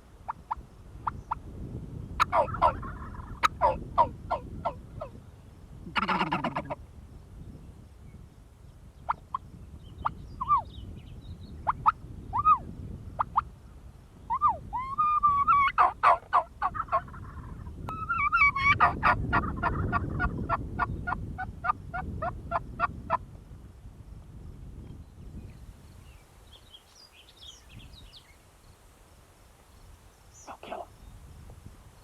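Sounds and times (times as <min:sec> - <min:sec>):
wild turkey calling: 0:02.2 - 0:05.2, 0:05.9 - 0:06.8, 0:14.3 - 0:22.9
faint songbird chirps: 0:06.7 - 0:18.6, 0:24.8 - 0:29.0, 0:29.6 - 0:32.0.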